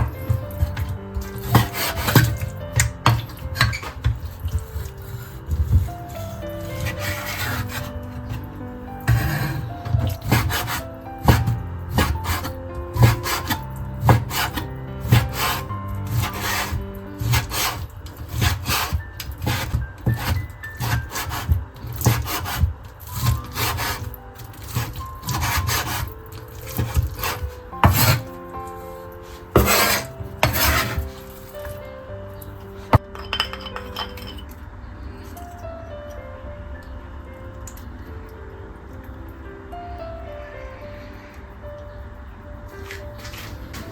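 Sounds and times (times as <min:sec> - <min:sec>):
hand tool scraping and knocking: 0:00.0 - 0:08.5, 0:09.1 - 0:28.4, 0:29.2 - 0:31.8
soft background music: 0:00.0 - 0:43.9.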